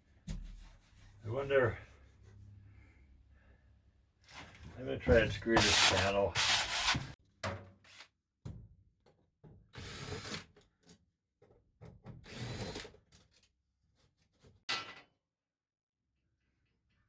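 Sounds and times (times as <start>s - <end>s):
power drill driving screws: 9.8s - 10.5s, 12.3s - 12.9s.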